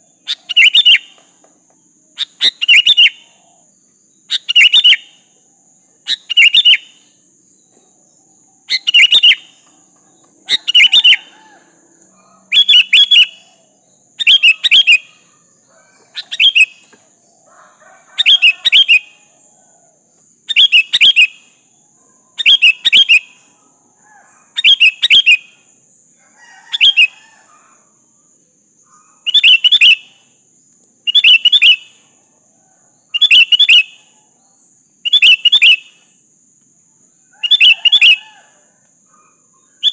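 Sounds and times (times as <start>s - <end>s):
bulbul calling: 0.0s - 1.3s, 2.2s - 3.6s, 4.3s - 5.2s, 6.0s - 7.2s, 8.6s - 19.4s, 20.5s - 21.6s, 22.4s - 25.6s, 26.6s - 27.8s, 28.9s - 30.3s, 31.0s - 32.0s, 33.1s - 34.2s, 35.0s - 36.0s, 37.4s - 38.5s, 39.1s - 39.9s.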